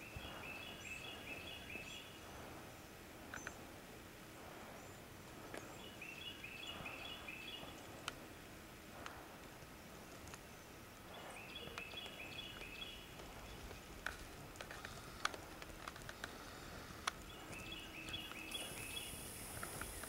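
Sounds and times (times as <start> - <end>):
small bird singing: 0.0 - 3.7, 4.6 - 8.2, 10.0 - 14.0, 16.2 - 20.0
faint sharp clicks: 3.3 - 3.6, 11.6 - 20.0.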